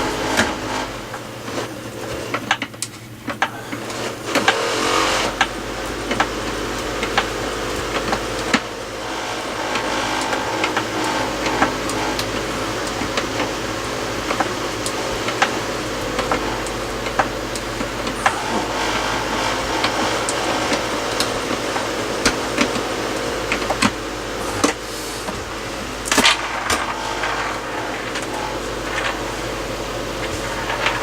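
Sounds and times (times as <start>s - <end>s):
sharp clicks and knocks: 0.0s - 31.0s
steady mechanical hum: 0.0s - 31.0s.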